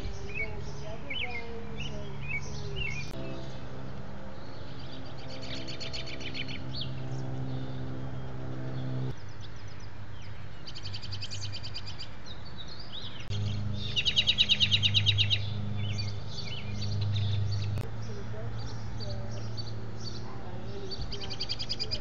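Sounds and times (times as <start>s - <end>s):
robin calling: 0.0s - 22.0s
low steady hum: 13.0s - 22.0s.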